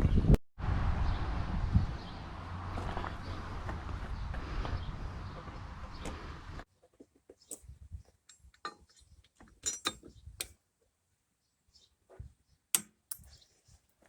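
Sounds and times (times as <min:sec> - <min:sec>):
metallic clicks of bolts and tools: 0:07.5 - 0:10.6, 0:12.8 - 0:13.5.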